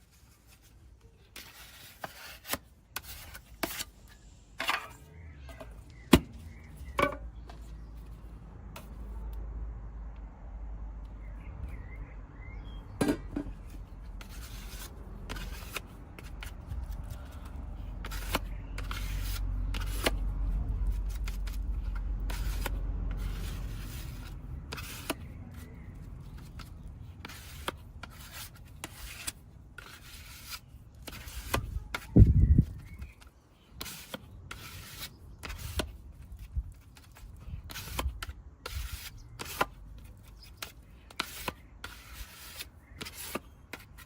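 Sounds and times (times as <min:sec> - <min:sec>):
hand tools scraping metal panels: 0:26.4 - 0:32.1, 0:37.0 - 0:44.0.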